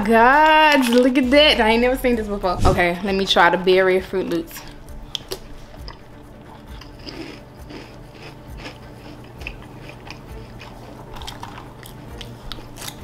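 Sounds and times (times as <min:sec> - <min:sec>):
person chewing cereal: 0:04.7 - 0:13.0.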